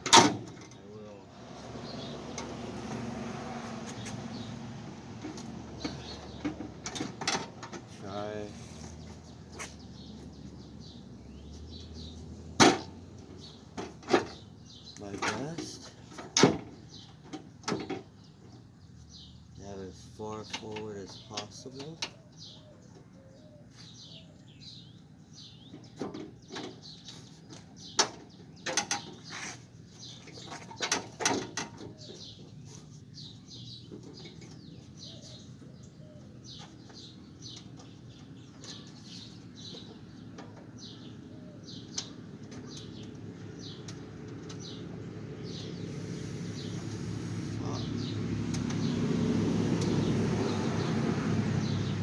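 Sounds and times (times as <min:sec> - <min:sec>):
birds chirping: 0:00.0 - 0:52.0
passing vehicle engine: 0:01.0 - 0:16.0, 0:34.4 - 0:52.0.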